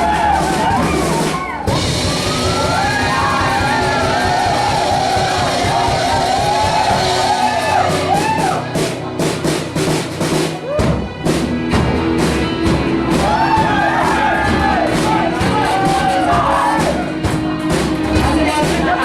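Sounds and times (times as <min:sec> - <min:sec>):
heavy drum hits: 0:00.0 - 0:19.0
live rock band playing: 0:00.0 - 0:19.0
person singing: 0:18.1 - 0:19.0.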